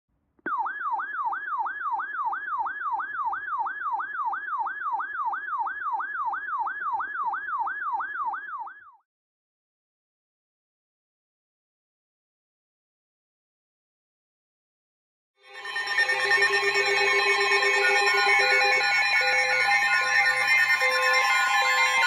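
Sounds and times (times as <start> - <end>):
electronic siren alert tone: 0.5 - 9.0, 15.5 - 22.0.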